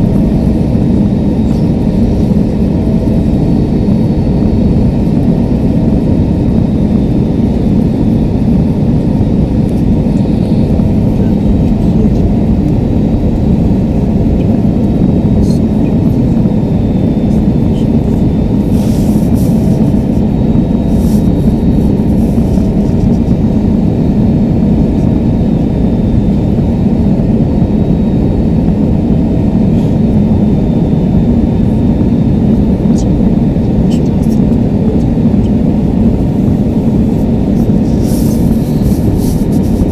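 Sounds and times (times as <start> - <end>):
jet engine roar in cabin: 0.0 - 39.9.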